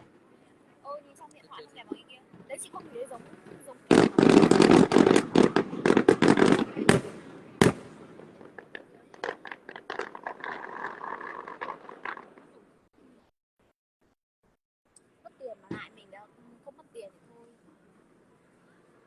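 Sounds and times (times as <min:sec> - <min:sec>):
firework crackling: 0:00.9 - 0:12.6
firework bangs: 0:01.8 - 0:12.6.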